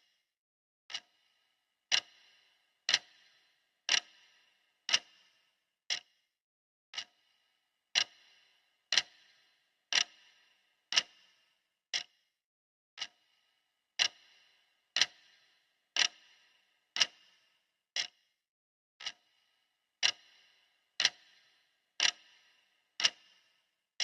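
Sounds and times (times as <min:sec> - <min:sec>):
timer clock ticking: 0:00.9 - 0:06.2, 0:06.9 - 0:12.2, 0:13.0 - 0:18.3, 0:19.0 - 0:23.6.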